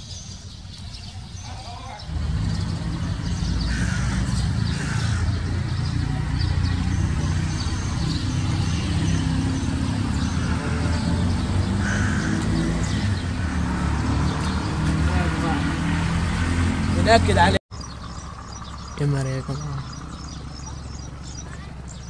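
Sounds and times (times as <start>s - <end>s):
birds calling: 0.0s - 22.0s
motorcycle engine idling: 17.7s - 22.0s.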